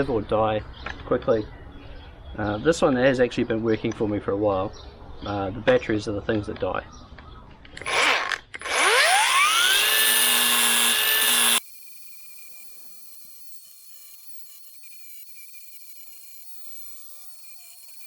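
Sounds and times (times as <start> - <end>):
angle grinder whine: 7.8 - 18.0.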